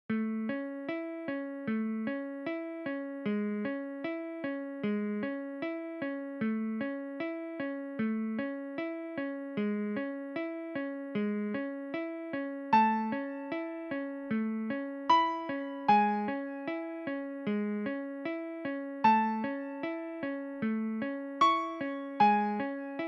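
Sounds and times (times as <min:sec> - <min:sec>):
electric piano repeating notes: 0:15.1 - 0:17.0, 0:21.4 - 0:23.0.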